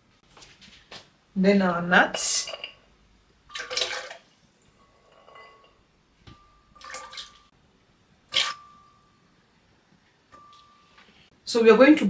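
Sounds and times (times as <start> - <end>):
nuts splashing into water: 3.5 - 4.4, 6.8 - 7.5, 8.3 - 8.9.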